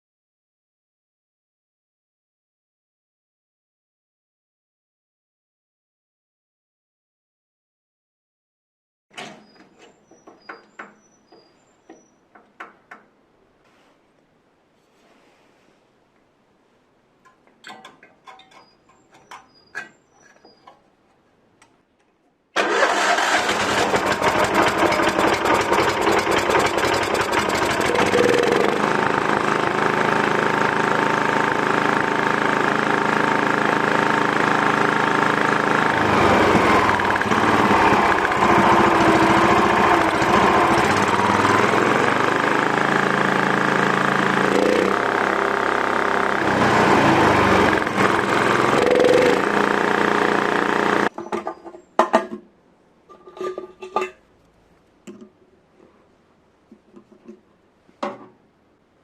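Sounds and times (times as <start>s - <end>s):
snowblower engine running: 22.6s - 51.1s.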